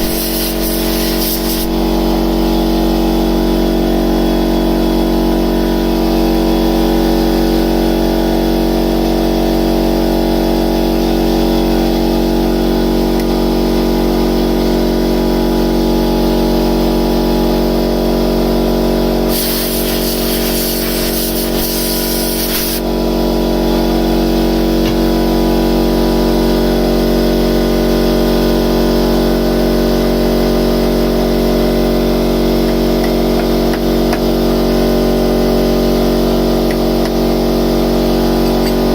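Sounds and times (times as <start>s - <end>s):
compressed air hissing: 0.0s - 1.8s, 19.3s - 22.8s
workshop machinery hum: 0.0s - 38.9s.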